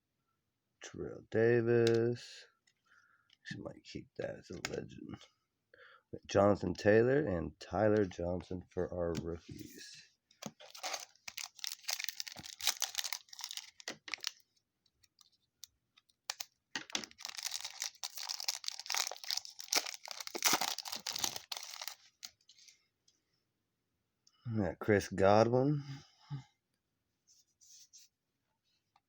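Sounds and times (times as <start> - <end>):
plastic wrapper tearing and crinkling: 10.4 - 22.4.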